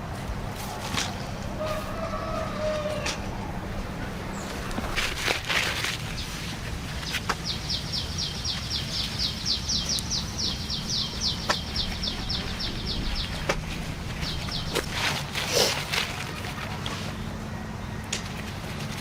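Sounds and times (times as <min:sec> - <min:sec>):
low steady hum: 0:00.0 - 0:19.0
bird trilling: 0:07.4 - 0:15.7.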